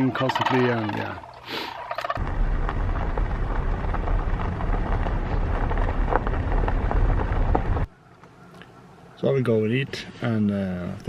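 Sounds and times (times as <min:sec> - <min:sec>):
wind buffeting microphone: 0:02.2 - 0:07.9.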